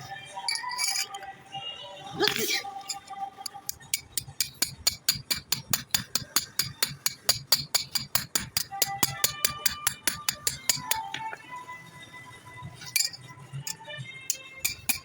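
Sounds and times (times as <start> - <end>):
light hammer taps on metal: 2.8 - 11.3.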